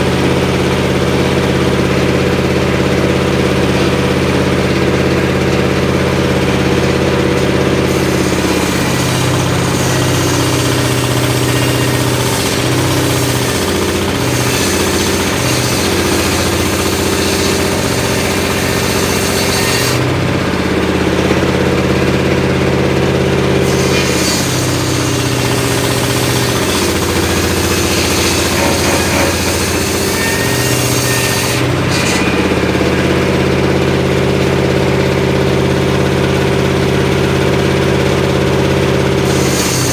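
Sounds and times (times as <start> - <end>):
sawmill engine running: 0.0 - 39.9
high hiss of sawing: 7.9 - 20.0, 23.6 - 32.6, 39.2 - 39.9.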